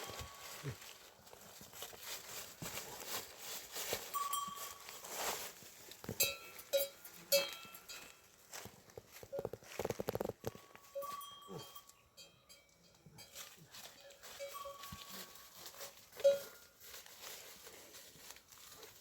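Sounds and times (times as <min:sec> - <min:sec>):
livestock bell clanking: 0:00.0 - 0:02.4, 0:03.1 - 0:08.6, 0:10.3 - 0:17.4
scuffling and knocks: 0:00.0 - 0:11.4, 0:13.2 - 0:19.0.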